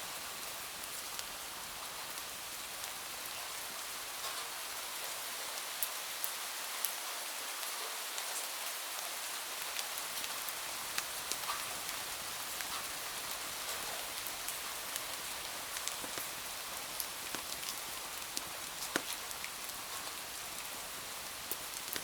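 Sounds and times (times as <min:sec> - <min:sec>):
steady rain hiss: 0:00.0 - 0:22.0
raindrop ticks: 0:09.8 - 0:12.0, 0:12.6 - 0:20.7, 0:21.4 - 0:22.0.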